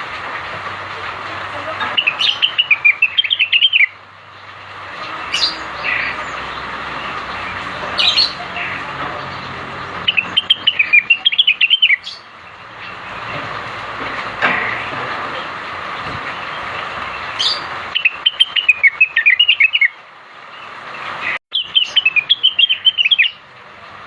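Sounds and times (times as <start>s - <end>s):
bird chirping song: 1.8s - 13.4s, 16.4s - 23.5s.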